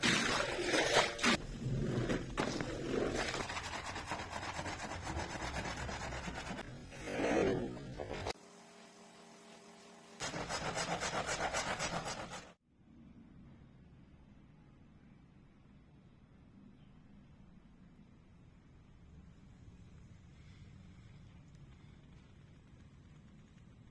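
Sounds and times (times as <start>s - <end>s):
stiff brush scrubbing rug: 0.1s - 8.4s, 10.2s - 12.6s.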